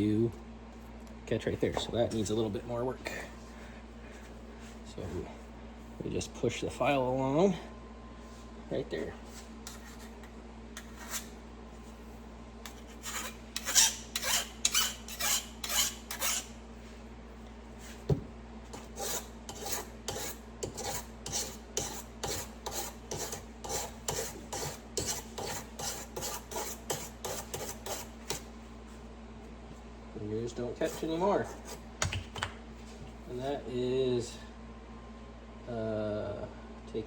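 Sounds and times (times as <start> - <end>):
file rasping on steel: 10.8 - 11.3, 12.6 - 16.6, 18.7 - 28.4.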